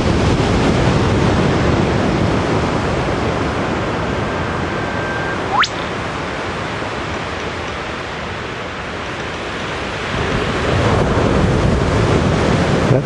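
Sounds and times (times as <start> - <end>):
rushing wind or surf: 0.0 - 13.0
bird whistle and whip-crack call: 4.8 - 5.9.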